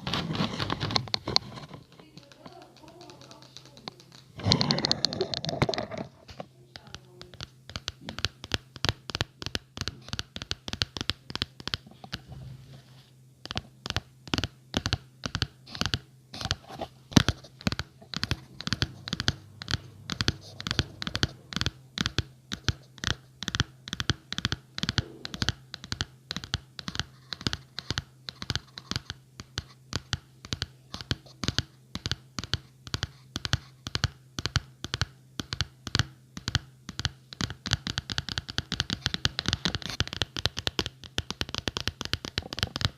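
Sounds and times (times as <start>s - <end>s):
scratching on a surface: 0.0s - 13.6s, 15.7s - 21.7s.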